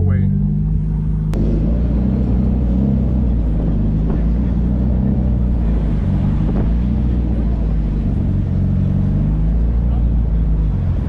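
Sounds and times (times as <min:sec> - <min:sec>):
car engine running at low speed: 0:00.0 - 0:11.0.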